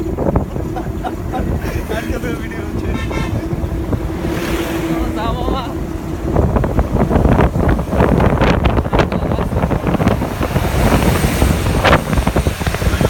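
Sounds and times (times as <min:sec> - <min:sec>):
low rumble of vehicles: 0:00.0 - 0:13.0
wind buffeting microphone: 0:00.0 - 0:13.0.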